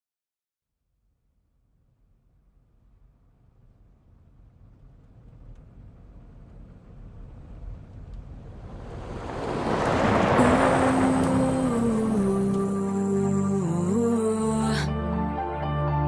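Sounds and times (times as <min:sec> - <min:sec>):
whooshing noise: 0:06.0 - 0:12.8
music: 0:10.4 - 0:16.0.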